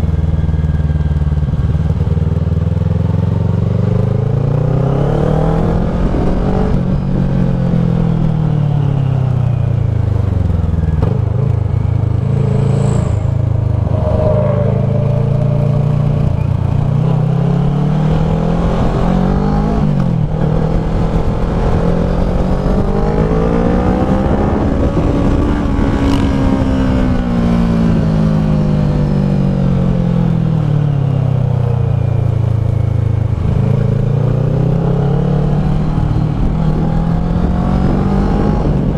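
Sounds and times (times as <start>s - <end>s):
motorcycle engine revving: 9.8s - 30.5s.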